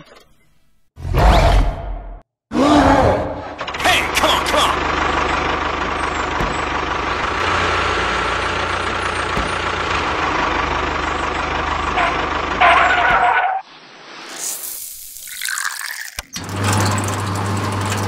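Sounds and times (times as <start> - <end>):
heavy vehicle engine rumbling: 2.7 - 13.6.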